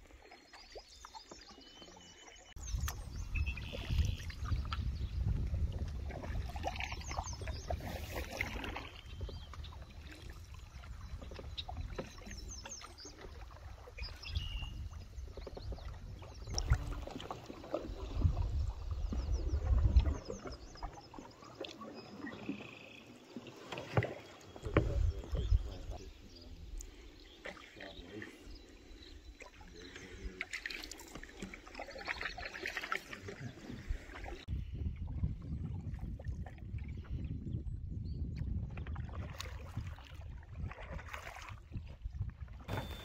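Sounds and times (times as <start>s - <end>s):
water lapping against canoe hull: 0.0s - 43.0s
paddle strokes swishing: 7.7s - 8.9s.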